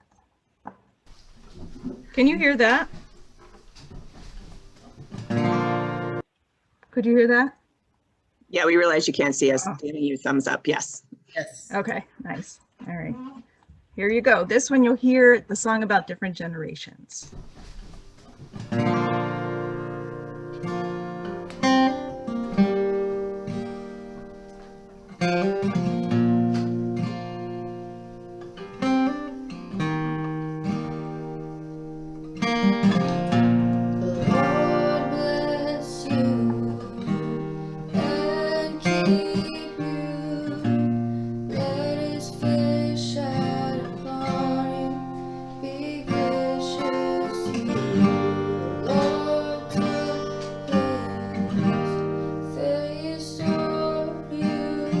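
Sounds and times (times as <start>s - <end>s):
strummed acoustic guitar: 1.4s - 6.2s, 17.3s - 55.0s
person singing: 34.0s - 55.0s.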